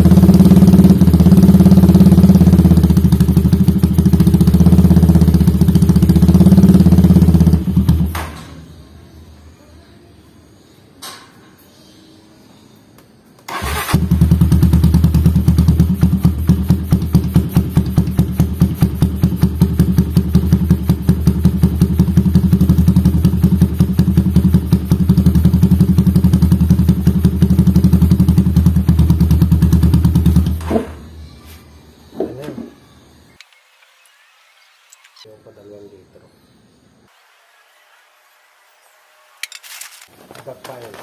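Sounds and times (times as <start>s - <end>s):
motorcycle engine idling: 0.0s - 8.2s, 13.5s - 30.8s
motorcycle engine starting: 0.0s - 8.7s, 13.5s - 31.2s.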